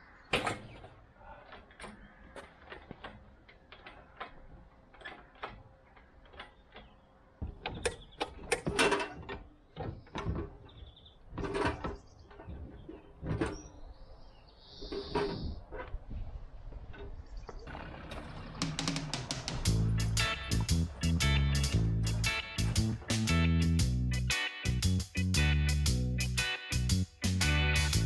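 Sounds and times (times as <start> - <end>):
rattling bursts: 17.8 - 28.0.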